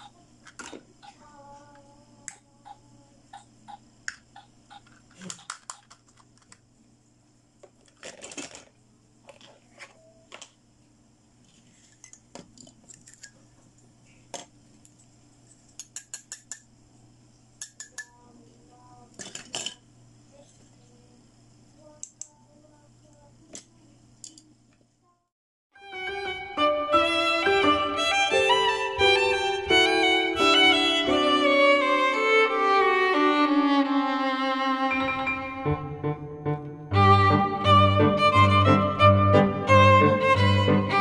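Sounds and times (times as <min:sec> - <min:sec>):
plastic toys clicking on table: 0:04.1 - 0:06.6, 0:15.8 - 0:16.7, 0:17.6 - 0:18.2.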